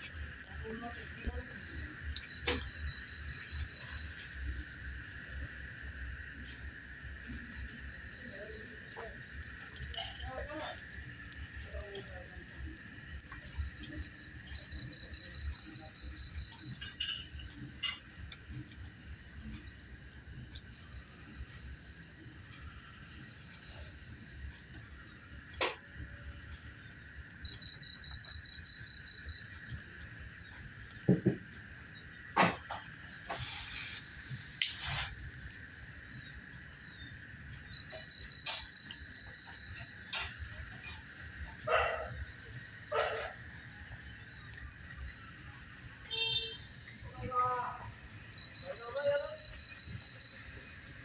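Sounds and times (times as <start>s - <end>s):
crickets droning: 0.0s - 51.0s
insect pulsing trill: 0.0s - 51.0s.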